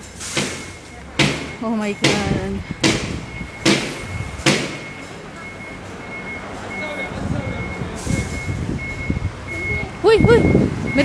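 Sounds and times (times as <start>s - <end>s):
truck engine rumble: 0.0s - 11.0s
sharp bangs: 0.2s - 5.1s
reversing alarm beeping: 0.4s - 11.0s.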